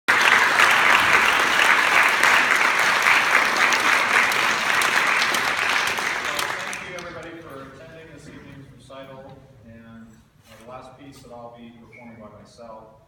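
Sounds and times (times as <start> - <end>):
audience applauding: 0.1 - 7.6.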